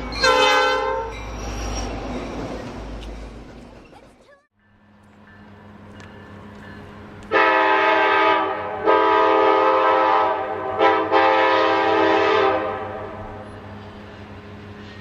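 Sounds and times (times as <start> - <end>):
locomotive air horn blasts: 0.2 - 1.2, 7.3 - 13.5.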